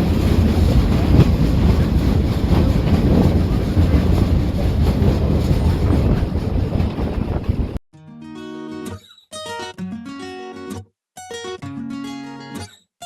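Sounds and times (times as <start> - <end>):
train heavy rumble: 0.0 - 7.8.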